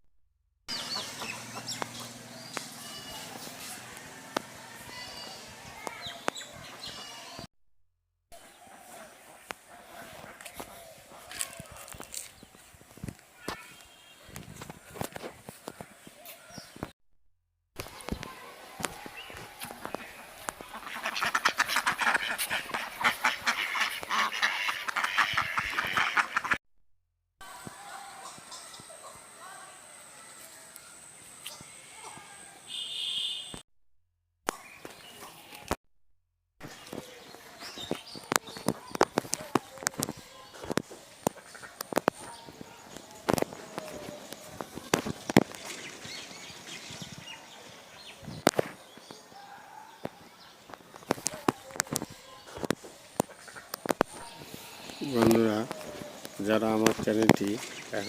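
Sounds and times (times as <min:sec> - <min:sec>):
many birds chattering: 0:00.7 - 0:07.5, 0:08.4 - 0:12.7, 0:17.8 - 0:26.6, 0:36.6 - 0:58.0.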